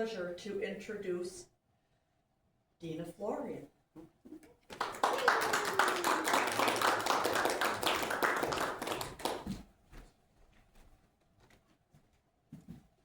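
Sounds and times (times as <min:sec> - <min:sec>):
small audience clapping: 0:04.6 - 0:09.7.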